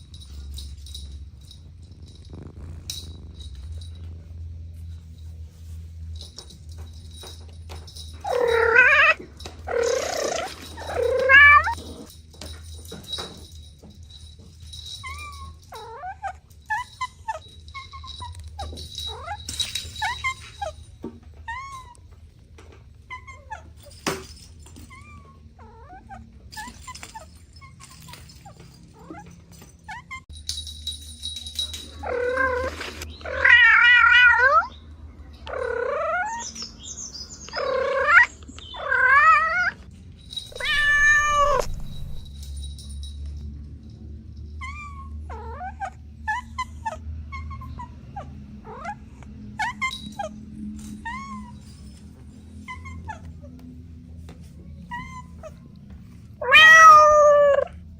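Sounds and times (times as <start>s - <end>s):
kittens mewing: 8.2s - 11.8s, 40.5s - 42.3s, 56.4s - 57.8s
cat meowing: 8.3s - 11.8s, 40.5s - 42.2s, 56.4s - 57.8s.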